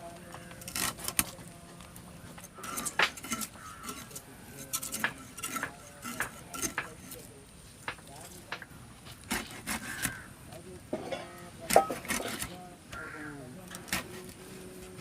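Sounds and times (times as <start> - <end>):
dishes and utensils clattering: 2.5 - 7.2, 10.9 - 12.6.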